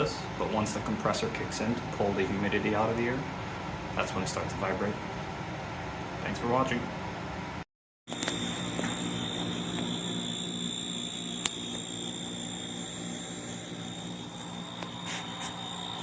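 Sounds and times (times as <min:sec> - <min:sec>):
dehumidifier humming: 0:00.0 - 0:16.0
high-pitched whine: 0:08.1 - 0:16.0.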